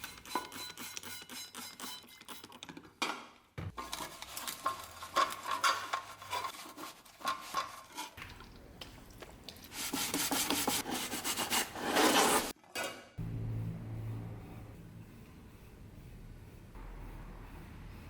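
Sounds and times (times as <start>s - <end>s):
metal scraping and rubbing: 3.8s - 8.2s, 9.8s - 12.6s.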